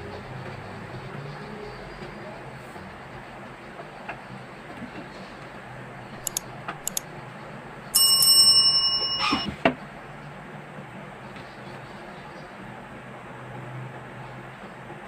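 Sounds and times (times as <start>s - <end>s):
light clicks: 6.2s - 7.0s
sharp clacks: 6.2s - 7.0s.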